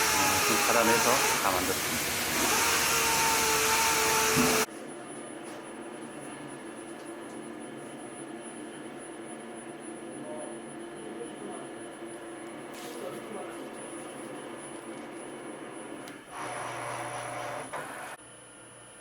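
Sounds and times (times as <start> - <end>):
power tool hissing and whining: 0.0 - 4.7
quiet machine hum: 4.6 - 19.0.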